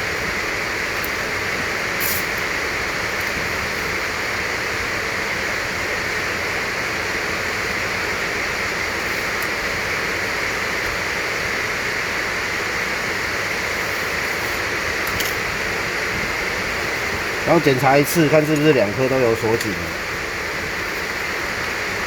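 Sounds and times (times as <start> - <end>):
fan hissing: 0.0 - 22.0.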